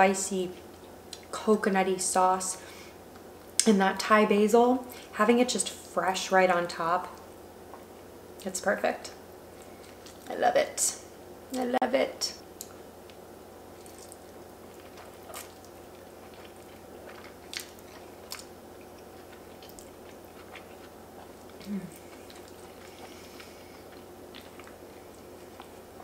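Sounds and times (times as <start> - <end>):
person chewing with wet mouth clicks: 13.8 - 25.8.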